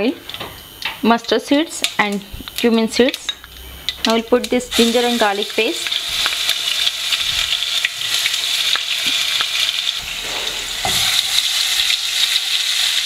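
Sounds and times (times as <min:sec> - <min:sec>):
paste sizzling in hot oil: 0:03.3 - 0:13.0.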